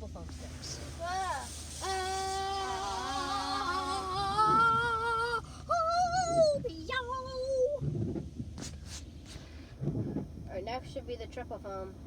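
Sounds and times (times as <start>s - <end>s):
lower voice singing: 1.8s - 6.6s.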